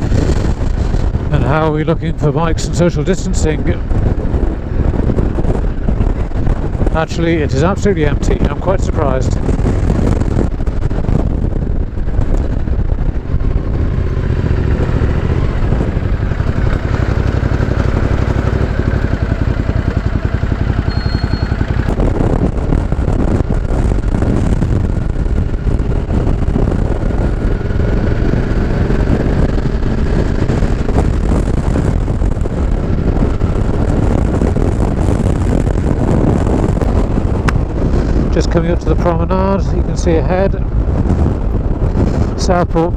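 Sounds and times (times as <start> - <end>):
motorcycle engine running: 0.0 - 42.9
wind rumble on microphone: 0.0 - 42.9.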